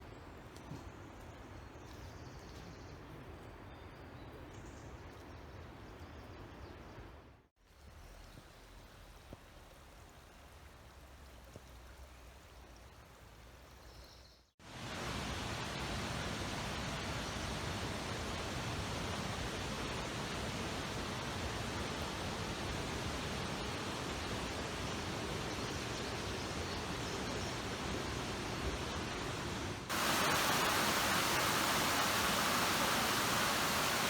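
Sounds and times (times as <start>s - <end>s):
steady rushing noise: 28.2s - 34.0s.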